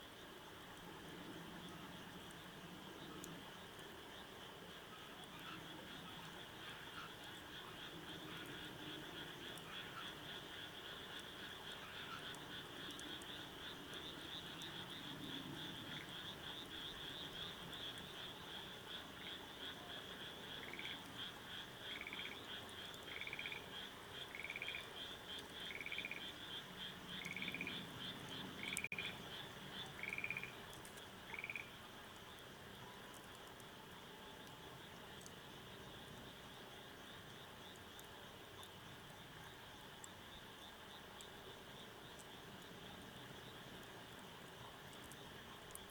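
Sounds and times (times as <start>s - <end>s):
frogs trilling: 1.5s - 45.9s
frog call: 4.8s - 33.3s.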